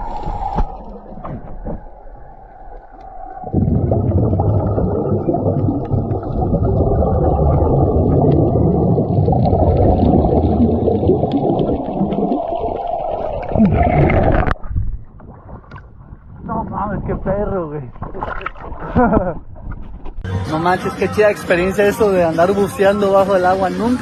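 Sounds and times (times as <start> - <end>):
underwater rushing water: 0.0 - 15.8.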